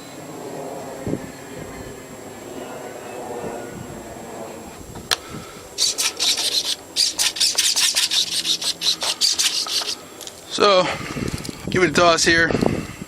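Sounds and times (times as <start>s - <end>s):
scratchy rasping rustles: 5.8s - 10.4s.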